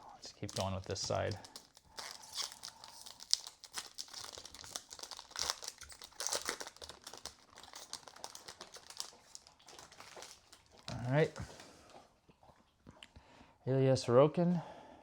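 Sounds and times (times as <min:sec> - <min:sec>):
foil wrapper tearing and crinkling: 0:00.3 - 0:11.3.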